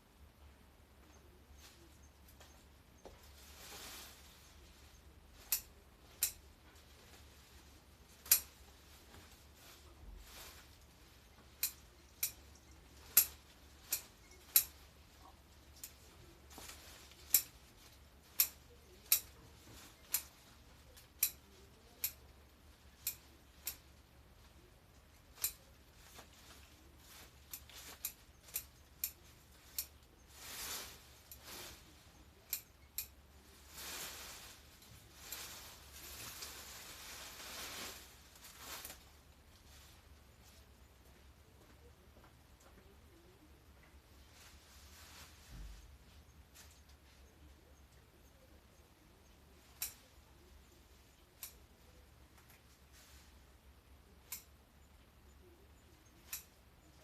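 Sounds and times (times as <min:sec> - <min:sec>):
foliage rustling: 0:01.6 - 0:42.0, 0:44.0 - 0:57.0
garden shears snipping: 0:05.4 - 0:06.6, 0:08.0 - 0:08.6, 0:10.6 - 0:22.3, 0:22.9 - 0:39.1, 0:49.5 - 0:52.8, 0:54.2 - 0:54.6, 0:56.0 - 0:57.0.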